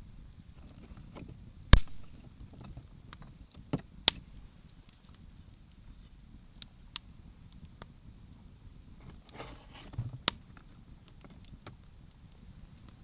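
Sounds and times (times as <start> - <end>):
campfire crackling: 0.0 - 13.0
sharp pops from fire: 0.1 - 13.0.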